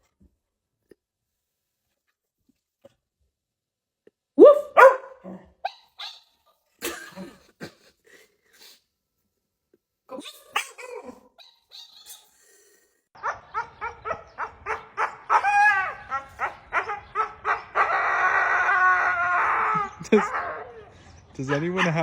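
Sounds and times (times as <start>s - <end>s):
dog barking and howling: 4.4s - 5.5s, 13.2s - 22.0s.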